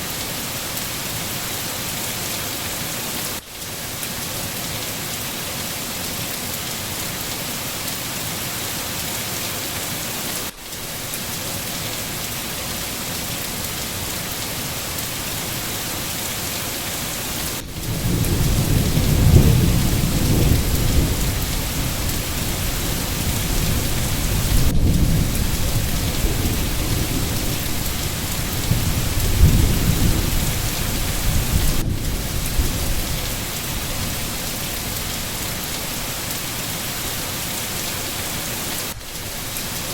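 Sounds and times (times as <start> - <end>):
rain hiss: 0.0 - 39.9
thunder rumbling: 17.4 - 35.5.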